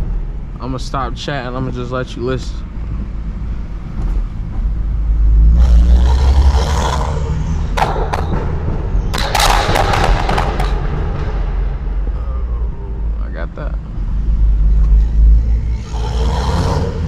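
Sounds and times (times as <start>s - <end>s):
car exhaust deep rumble: 0.0s - 17.0s
exhaust pops and cracks: 7.8s - 11.6s.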